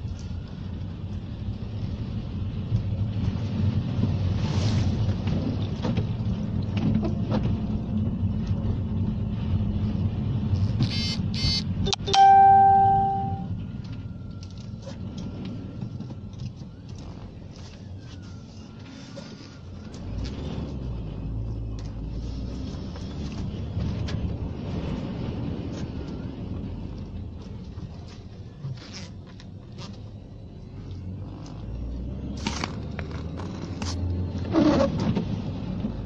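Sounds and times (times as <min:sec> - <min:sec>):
loud chime ringing: 0:11.4 - 0:13.5.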